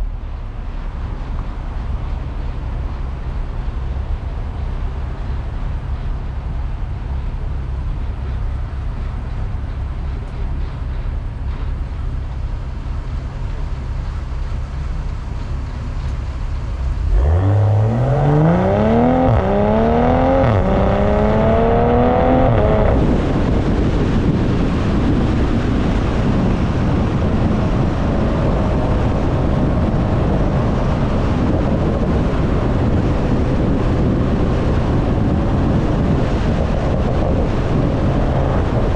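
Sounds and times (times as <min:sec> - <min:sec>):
car exhaust droning: 0:00.0 - 0:38.9
wind noise on microphone: 0:00.0 - 0:38.9
engine revving under acceleration: 0:16.6 - 0:23.9.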